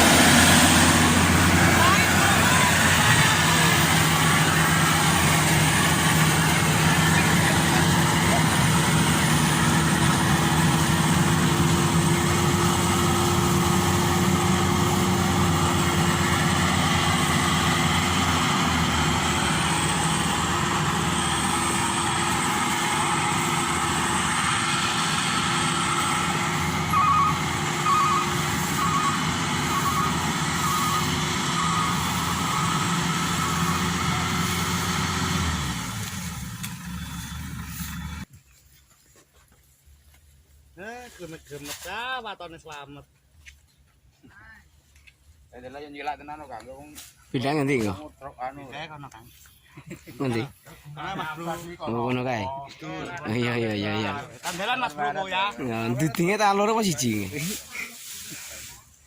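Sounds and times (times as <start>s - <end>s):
combine harvester engine running: 0.0s - 38.4s.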